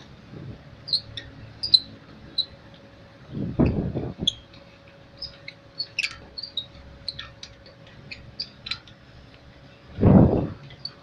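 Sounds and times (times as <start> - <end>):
small birds chirping: 0.8 - 2.6, 5.2 - 7.4.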